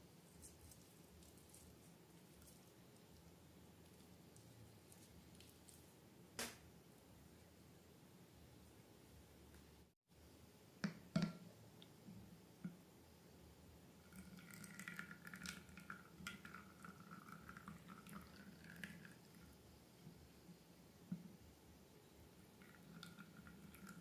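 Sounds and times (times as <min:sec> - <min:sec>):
small sticky clicks and crackles: 0:00.4 - 0:05.9.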